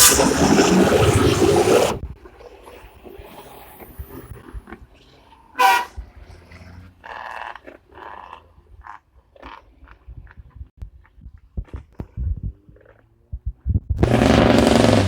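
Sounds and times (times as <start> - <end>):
vehicle horn toot: 5.6 - 6.0
low rumbling thumps: 13.3 - 15.0.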